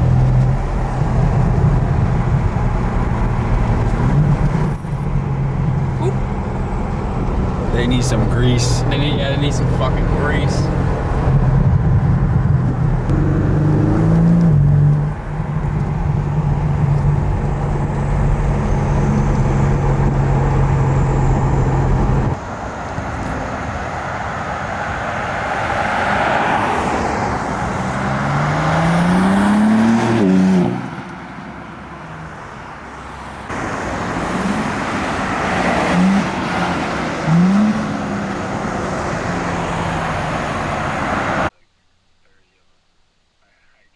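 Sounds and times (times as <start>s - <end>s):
sports car engine revving: 5.3s - 22.4s, 27.6s - 30.9s, 33.5s - 41.5s.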